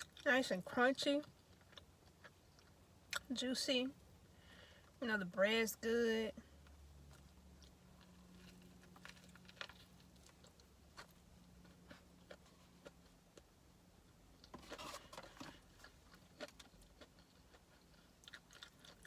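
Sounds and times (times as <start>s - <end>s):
person chewing food: 0.0s - 0.3s, 1.2s - 3.3s, 6.6s - 19.0s
low steady hum: 0.0s - 19.0s.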